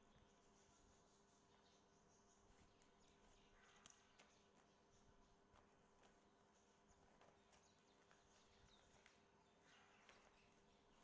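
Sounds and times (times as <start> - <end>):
small faint clicks: 2.4 - 10.8.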